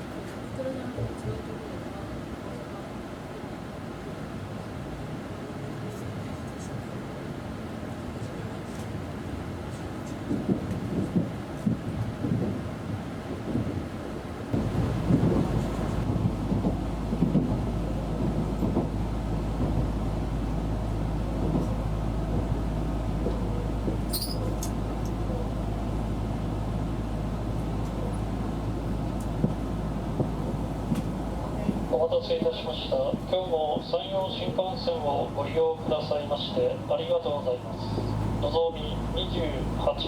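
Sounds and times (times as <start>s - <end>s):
train low rumble inside car: 0.0s - 40.0s
steady low hum: 14.5s - 40.0s.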